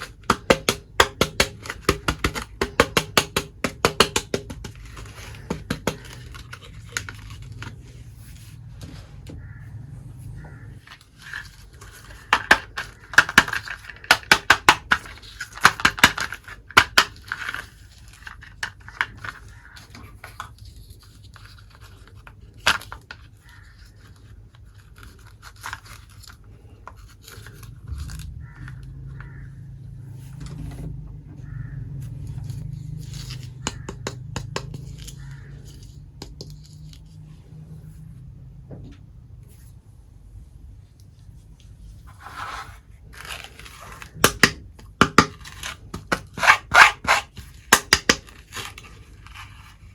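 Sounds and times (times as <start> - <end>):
packaging scraping and tearing: 4.7 - 8.7, 16.2 - 29.4, 32.2 - 33.9, 41.9 - 49.9.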